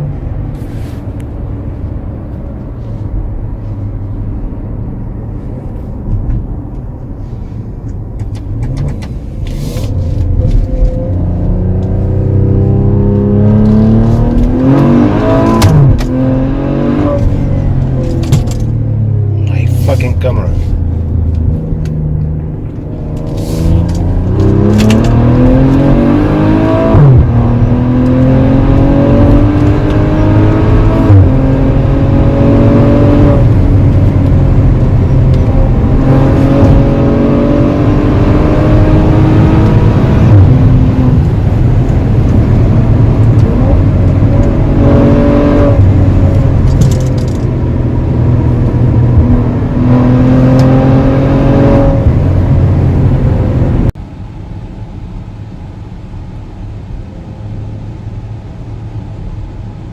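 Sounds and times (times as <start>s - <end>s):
car engine accelerating hard: 8.3s - 54.0s.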